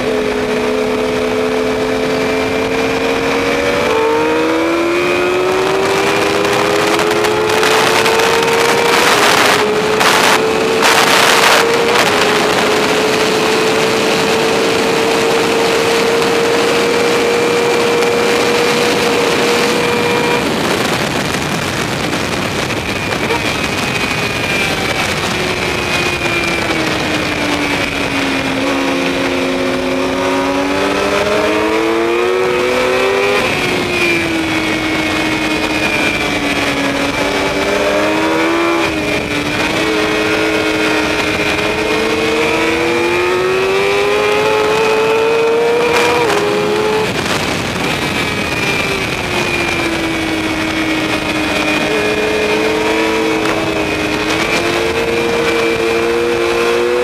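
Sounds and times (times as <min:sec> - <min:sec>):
constant high whine: 0:00.0 - 0:57.0
motorcycle engine revving through gears: 0:00.0 - 0:57.0
wind rush: 0:00.0 - 0:57.0.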